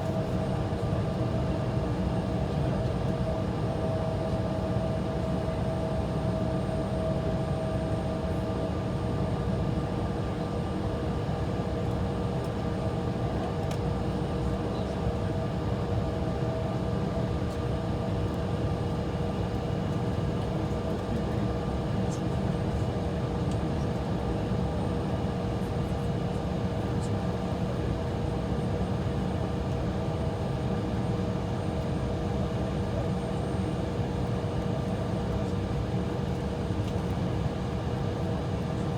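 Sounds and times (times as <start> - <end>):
aircraft cabin engine hum: 25.0 - 38.9.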